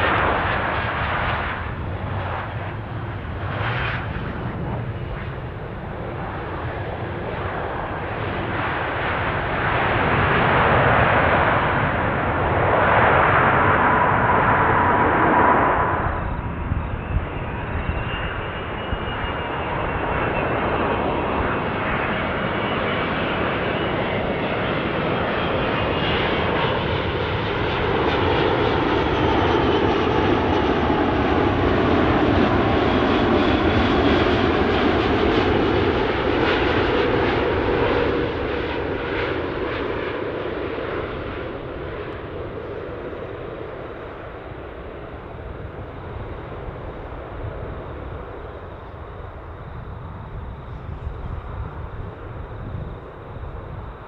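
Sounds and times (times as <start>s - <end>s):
jet airliner engines: 0.0s - 54.0s.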